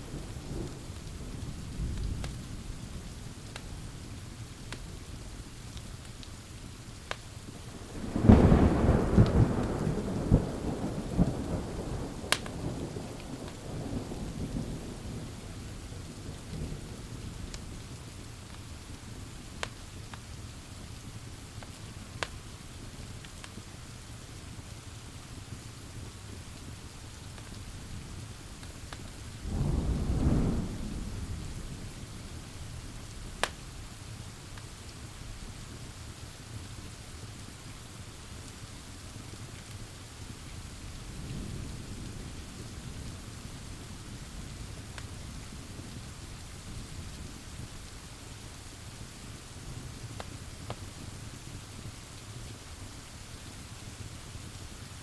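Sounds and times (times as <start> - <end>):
thunder rumbling: 0.0 - 4.1, 7.7 - 17.9, 29.1 - 34.2
pouring rain: 0.0 - 55.0
wood fire crackling: 0.0 - 55.0
wood fire popping: 5.7 - 8.6, 12.2 - 12.6, 17.6 - 20.4, 21.1 - 22.5, 32.1 - 35.1.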